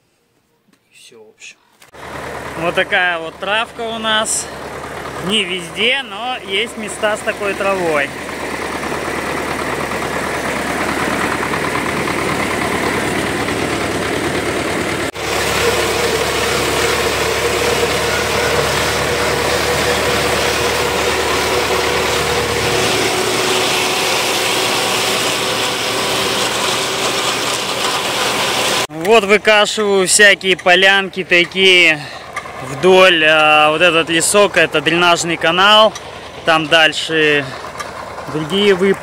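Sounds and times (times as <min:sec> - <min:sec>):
tractor engine running: 0:01.9 - 0:39.0
steady whine: 0:02.2 - 0:29.4.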